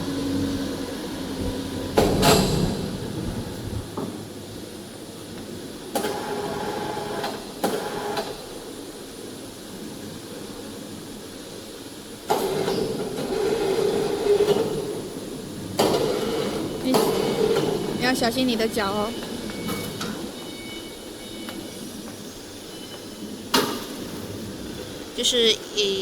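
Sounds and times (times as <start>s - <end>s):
rolling mechanical rumble: 0.0s - 6.0s, 8.6s - 26.0s
steady machine hum: 13.1s - 26.0s.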